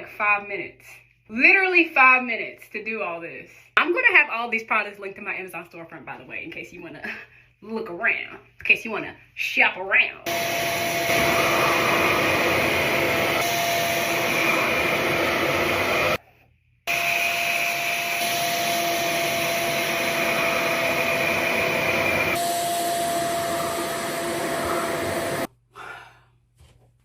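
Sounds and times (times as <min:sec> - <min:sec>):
hair dryer whining: 0:10.3 - 0:16.2, 0:16.9 - 0:25.5.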